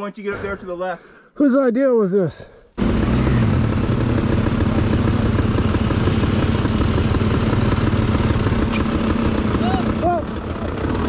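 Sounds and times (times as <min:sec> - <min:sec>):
motorcycle engine running: 0:02.8 - 0:11.0.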